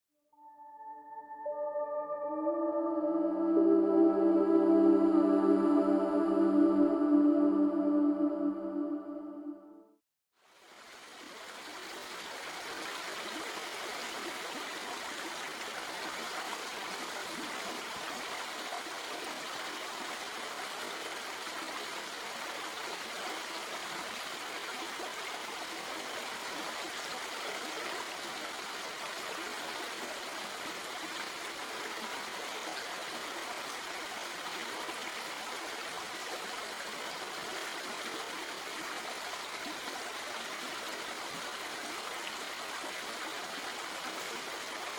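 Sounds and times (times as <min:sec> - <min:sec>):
stream flowing over rocks: 0:10.4 - 0:44.9.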